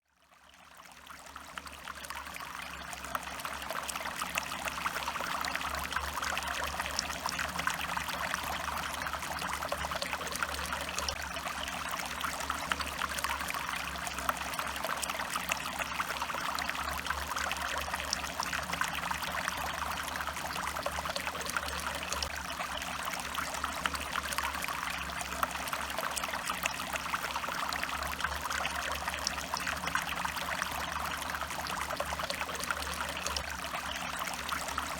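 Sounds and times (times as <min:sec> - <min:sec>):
stream water trickling: 0:00.1 - 0:34.9.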